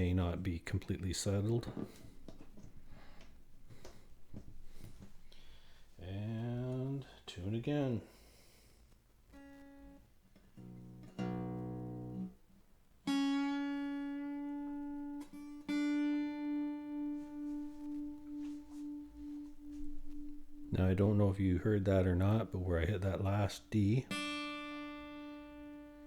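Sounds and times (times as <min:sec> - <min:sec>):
acoustic guitar strings plucked: 0:10.6 - 0:12.4, 0:13.1 - 0:26.0.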